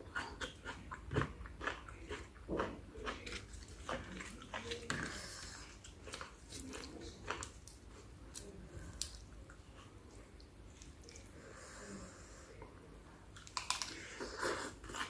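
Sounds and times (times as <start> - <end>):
person chewing food: 0.0 - 11.3, 13.4 - 15.0.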